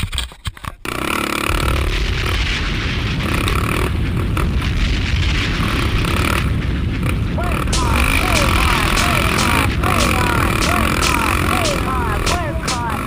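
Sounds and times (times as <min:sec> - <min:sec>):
wind buffeting microphone: 0:01.6 - 0:13.0.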